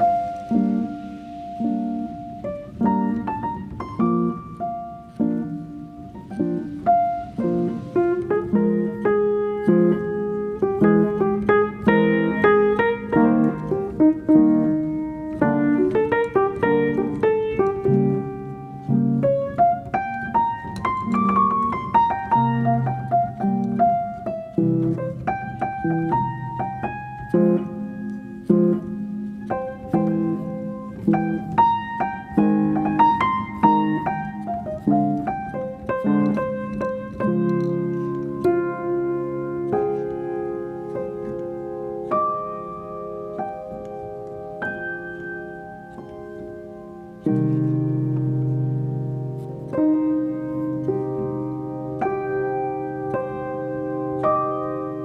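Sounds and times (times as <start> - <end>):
piano music: 0.0 - 55.0.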